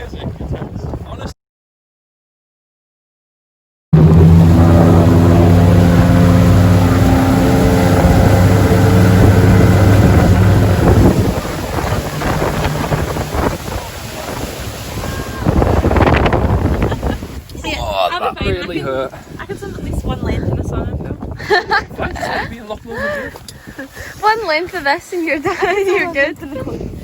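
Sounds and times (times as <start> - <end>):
wind buffeting microphone: 0.0 - 1.3, 4.0 - 27.0
motorboat engine running: 4.0 - 17.5
water noise: 4.0 - 26.7.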